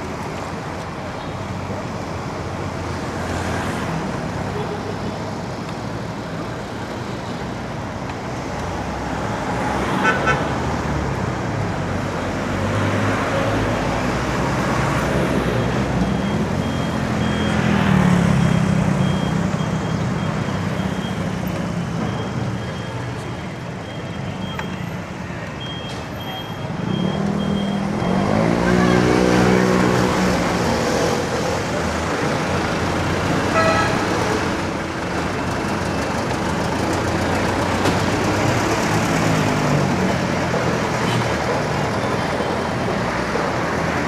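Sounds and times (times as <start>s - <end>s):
motor vehicles running: 0.0s - 44.0s
road and wind noise: 0.0s - 44.0s
loud engine passing: 27.1s - 34.8s
short horn toot: 33.5s - 34.1s.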